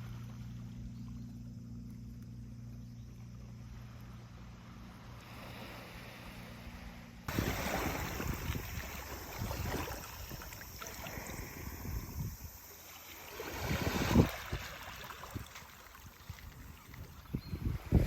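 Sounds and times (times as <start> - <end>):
gusty wind on microphone: 7.3 - 12.6, 13.4 - 18.0.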